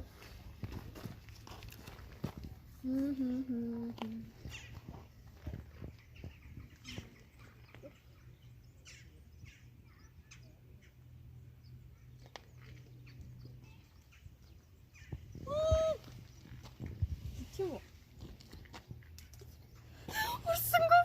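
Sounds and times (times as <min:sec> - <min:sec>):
birds chirping: 0:04.1 - 0:18.7.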